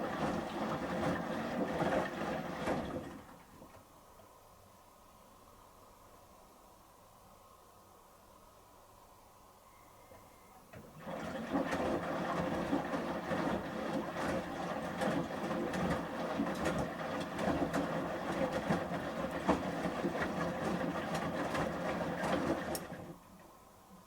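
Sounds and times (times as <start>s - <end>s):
washing machine drum turning: 0.0s - 3.3s, 10.7s - 23.2s
water sloshing with knocks: 0.0s - 3.9s, 10.7s - 23.5s.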